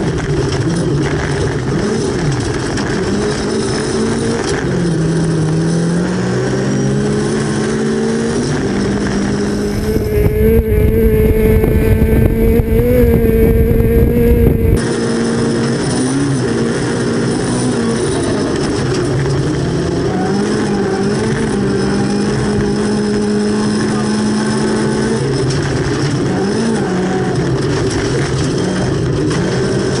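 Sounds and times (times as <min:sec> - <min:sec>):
rally car engine at high revs: 0:00.0 - 0:30.0
road noise: 0:00.0 - 0:30.0
heavy wind rumble: 0:08.4 - 0:14.9.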